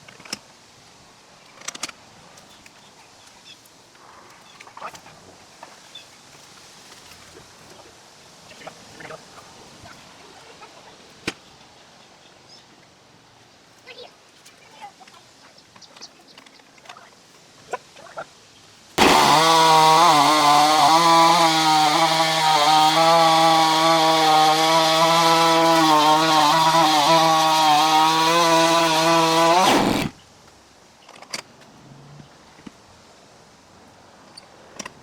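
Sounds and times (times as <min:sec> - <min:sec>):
chainsaw cutting a log: 0:19.0 - 0:30.2.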